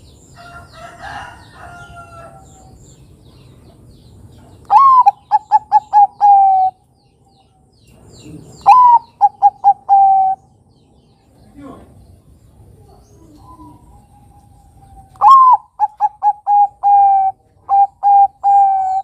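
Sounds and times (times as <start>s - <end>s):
dove cooing: 4.7s - 6.8s, 8.2s - 10.5s, 12.7s - 19.0s.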